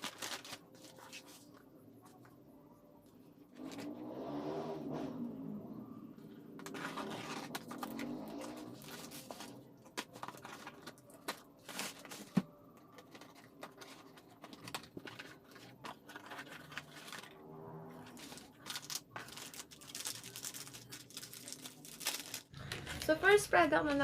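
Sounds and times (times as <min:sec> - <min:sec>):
packaging crinkling and rustling: 0:00.0 - 0:01.6, 0:06.6 - 0:17.4, 0:18.0 - 0:23.4.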